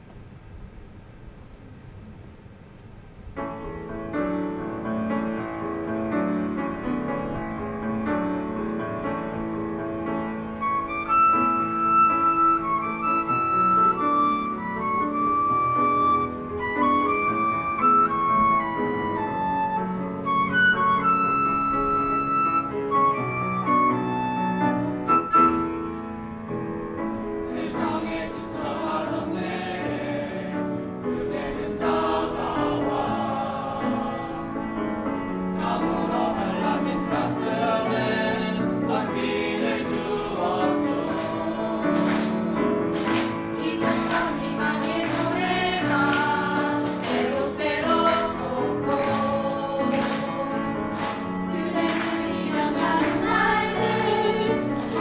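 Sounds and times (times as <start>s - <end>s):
choir singing: 27.3s - 55.0s
hand-clapping: 40.9s - 55.0s.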